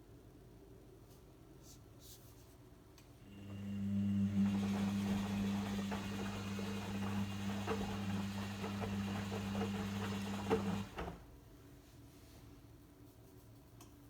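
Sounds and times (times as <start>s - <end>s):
drain pump humming: 3.3s - 11.4s.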